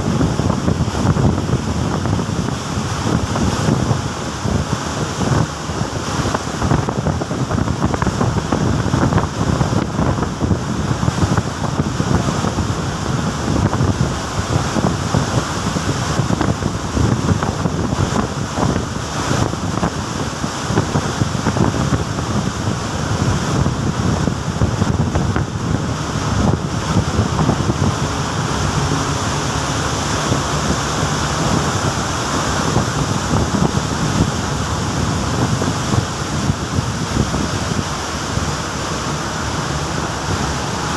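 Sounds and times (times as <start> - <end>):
sea waves churning: 0.0 - 40.9
wind noise on microphone: 0.0 - 40.9.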